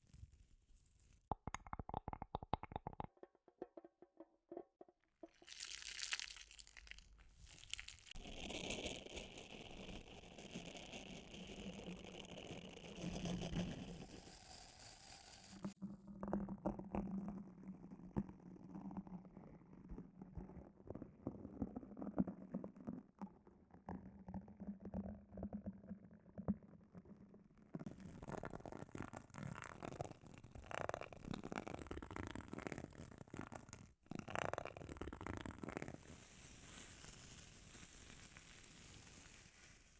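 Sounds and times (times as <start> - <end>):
crackling and clicks of objects: 0.0 - 12.9.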